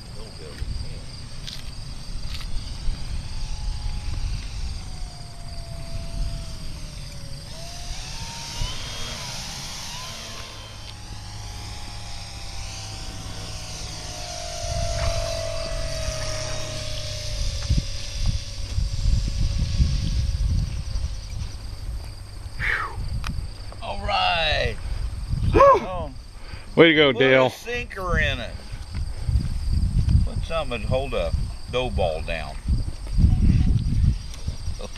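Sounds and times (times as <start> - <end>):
model plane propeller whine: 0.0 - 34.9.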